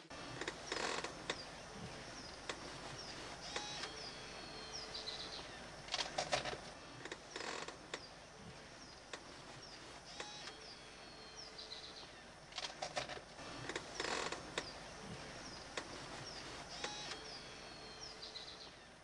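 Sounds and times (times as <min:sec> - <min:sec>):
faint outdoor ambience: 0:00.0 - 0:19.0
birds chirping: 0:00.1 - 0:19.0
sharp clicks: 0:05.9 - 0:08.1, 0:12.5 - 0:14.7.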